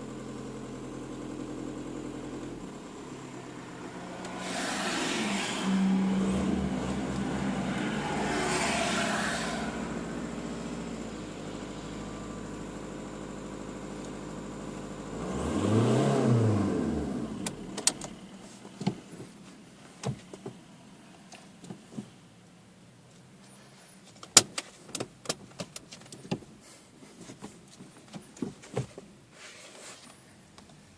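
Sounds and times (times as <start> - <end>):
diesel engine idling and revving: 0.0 - 22.9
sharp clicks and knocks: 24.1 - 26.5.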